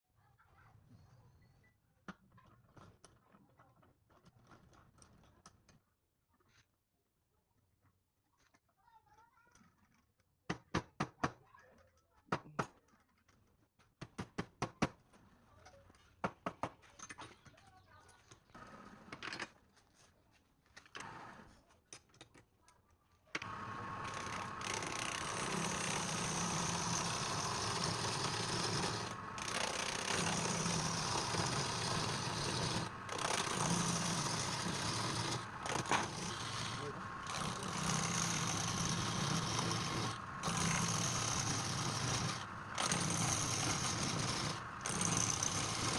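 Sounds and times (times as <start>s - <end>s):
wood lathe running: 23.4s - 45.9s.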